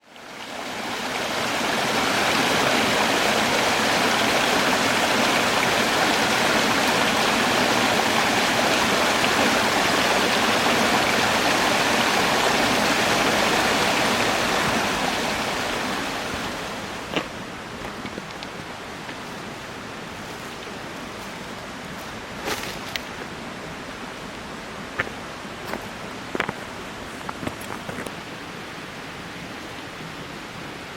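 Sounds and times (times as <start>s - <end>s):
mountain stream rushing: 0.0s - 30.9s.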